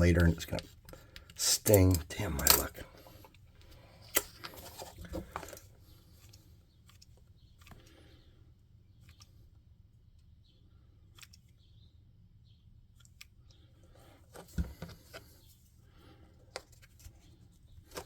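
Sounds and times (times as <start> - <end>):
crafting tools clicking and knocking: 1.2 - 2.8.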